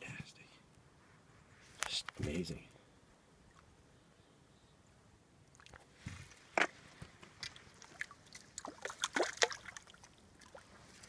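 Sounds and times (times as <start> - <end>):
lake water splashing: 5.5 - 11.0.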